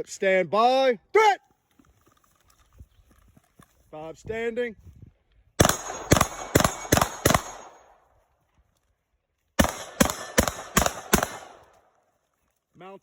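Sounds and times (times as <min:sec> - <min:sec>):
gunshots: 0:05.6 - 0:08.0, 0:09.6 - 0:11.7.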